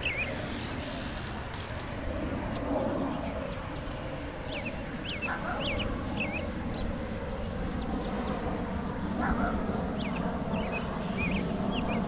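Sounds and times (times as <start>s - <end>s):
bird chirping: 0.0s - 1.3s, 2.8s - 8.4s, 9.2s - 12.0s
low outdoor rumble: 0.0s - 12.0s.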